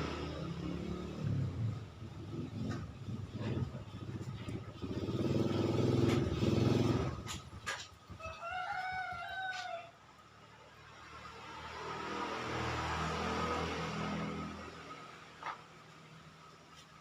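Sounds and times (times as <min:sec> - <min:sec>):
motorcycle engine revving: 0:00.0 - 0:07.9, 0:11.0 - 0:15.4
rooster crowing: 0:08.2 - 0:10.0.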